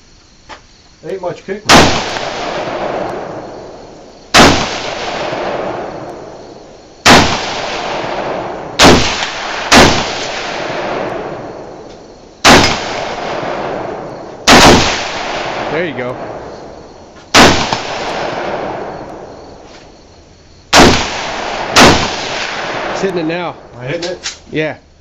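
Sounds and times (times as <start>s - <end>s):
rifle shots with echo: 1.7s - 6.4s, 7.0s - 11.8s, 12.4s - 16.7s, 17.3s - 19.6s, 20.7s - 23.7s.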